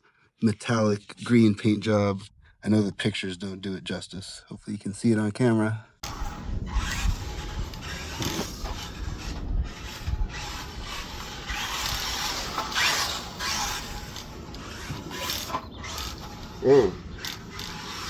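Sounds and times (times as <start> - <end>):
toy truck motor whirring: 6.0 - 18.0.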